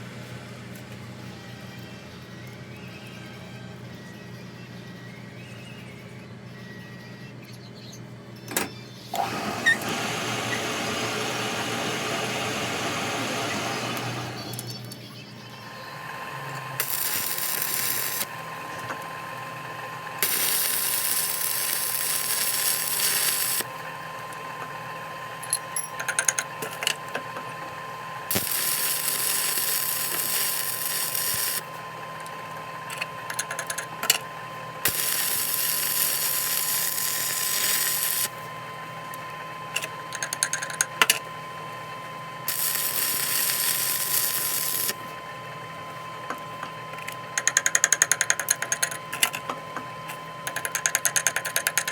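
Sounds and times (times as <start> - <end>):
machine hum: 8.0 - 51.9
power tool on steel: 9.1 - 14.9, 15.9 - 18.8, 20.2 - 23.7, 28.3 - 31.7, 34.8 - 38.4, 42.5 - 45.0.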